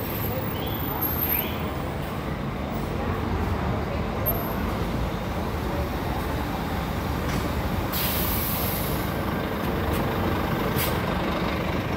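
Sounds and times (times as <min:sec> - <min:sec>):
bus engine running: 0:00.0 - 0:11.9
air brake hiss: 0:07.9 - 0:09.1, 0:10.8 - 0:11.0.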